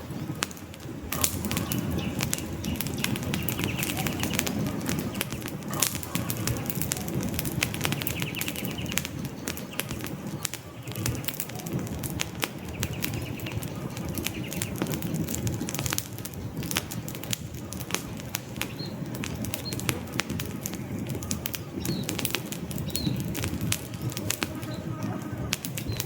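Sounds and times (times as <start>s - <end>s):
campfire crackling and popping: 0.0s - 26.0s
low rush of flame: 0.0s - 26.0s
faint bird chirps: 1.4s - 5.4s.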